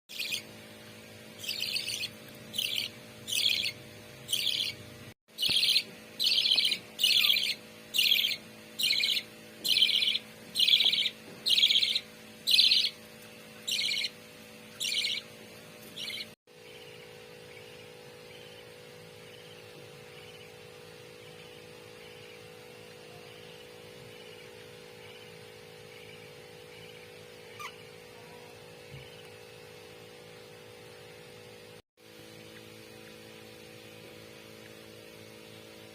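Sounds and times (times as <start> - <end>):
budgerigars rasping calls: 0.1 - 0.4, 1.4 - 4.8, 5.4 - 13.0, 13.7 - 14.1, 14.8 - 15.2, 16.0 - 16.3, 27.5 - 27.9
faint chirping: 0.1 - 0.5, 1.4 - 13.0, 13.6 - 15.3, 16.0 - 29.4
steady low hum: 0.1 - 35.9.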